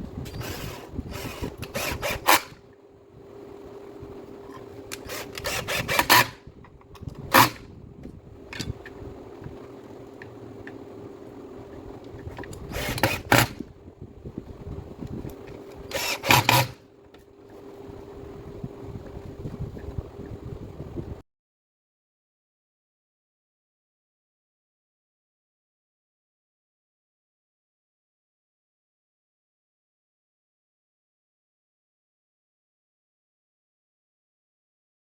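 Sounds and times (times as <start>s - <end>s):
faint steady hum: 0.0s - 21.2s.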